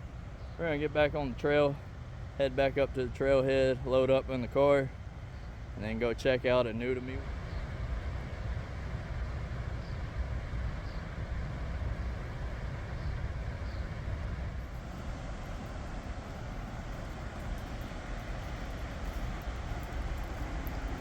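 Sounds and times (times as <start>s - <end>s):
river rushing: 7.2s - 21.0s.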